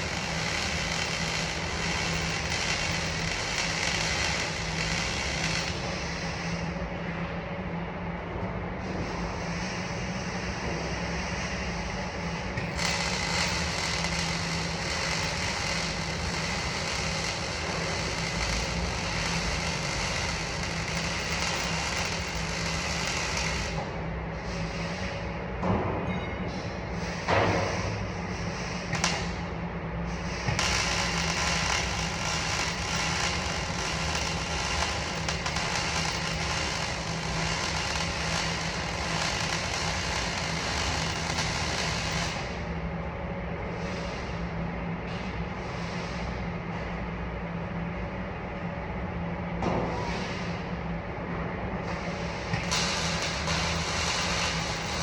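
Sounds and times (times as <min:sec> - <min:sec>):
welding arc crackling hiss: 0:00.0 - 0:06.7, 0:09.1 - 0:25.1, 0:30.1 - 0:42.6, 0:51.9 - 0:55.0
low machine hum: 0:00.0 - 0:55.0.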